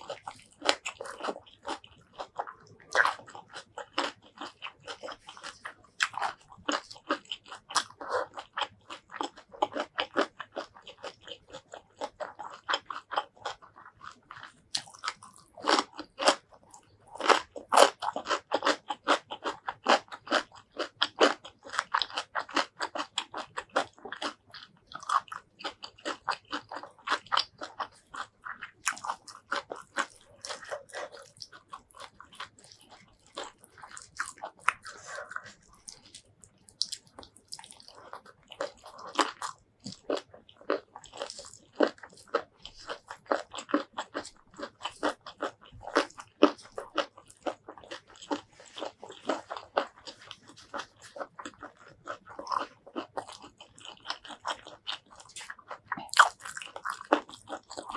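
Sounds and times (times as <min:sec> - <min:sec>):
close chewing with crunches: 0:00.0 - 0:57.9.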